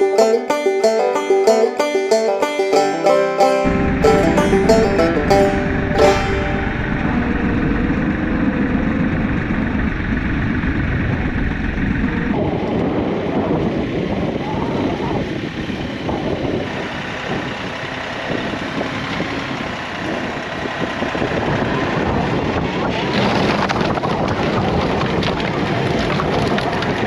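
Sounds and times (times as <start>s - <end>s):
tractor engine running: 3.6s - 12.4s.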